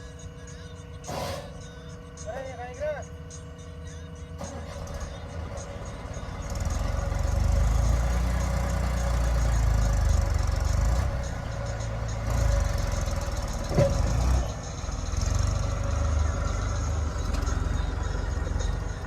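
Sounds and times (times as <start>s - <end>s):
heavy diesel engine running: 0.0s - 19.0s
sharp metal clank: 1.0s - 1.8s.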